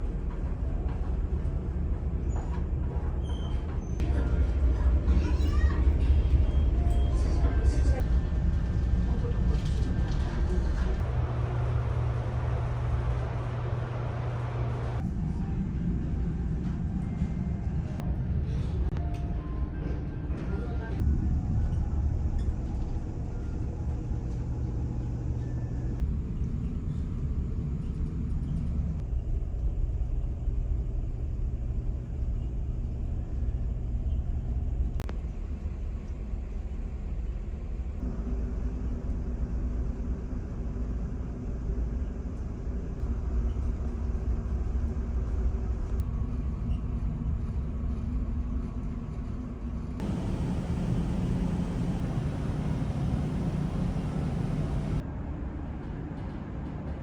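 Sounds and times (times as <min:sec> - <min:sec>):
ferry engines rumbling: 0:00.0 - 0:19.8, 0:50.0 - 0:55.0
steady low tones: 0:50.0 - 0:55.0.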